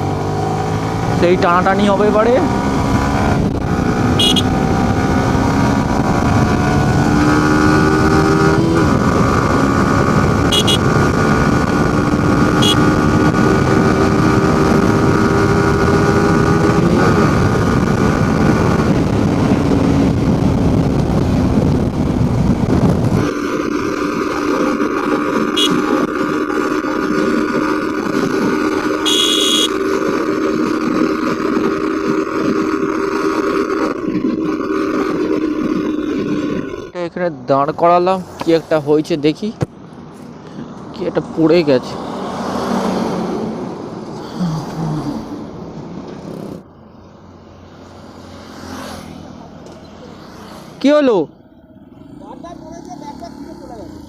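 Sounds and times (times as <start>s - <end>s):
low wind rumble: 0.0s - 29.1s
motorcycle engine accelerating: 0.0s - 37.0s, 47.7s - 54.0s.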